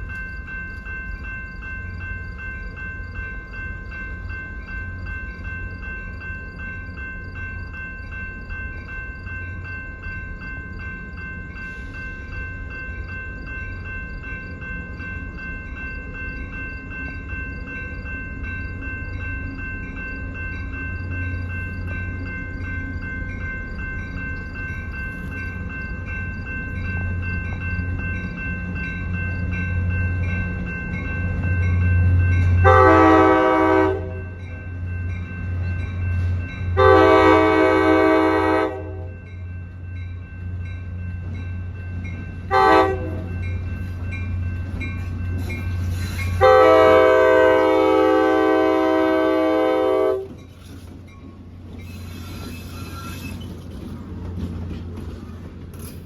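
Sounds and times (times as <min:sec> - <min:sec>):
crossing bell ringing: 0:00.0 - 0:56.0
diesel locomotive engine rumble: 0:00.0 - 0:56.0
locomotive horn blasts: 0:32.6 - 0:34.4, 0:36.8 - 0:39.1, 0:42.5 - 0:43.3, 0:46.4 - 0:50.4.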